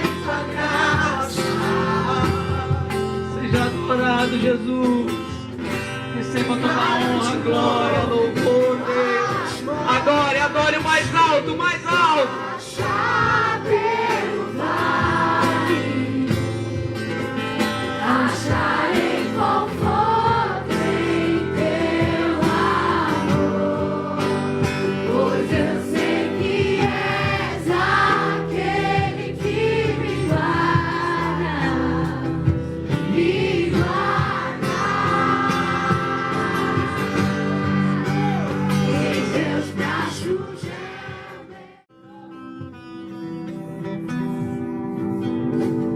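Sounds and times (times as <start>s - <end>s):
choir singing gospel: 0.0s - 4.4s, 6.2s - 10.6s, 12.2s - 41.9s
instrumental backing: 0.0s - 45.9s.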